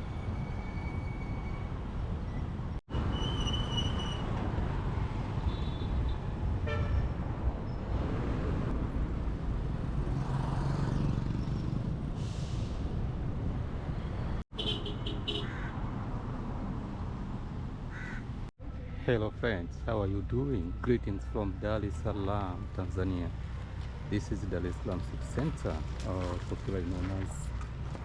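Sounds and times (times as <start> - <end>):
vehicles passing: 0.0 - 28.0
car horn toot: 6.6 - 7.1, 14.5 - 15.5.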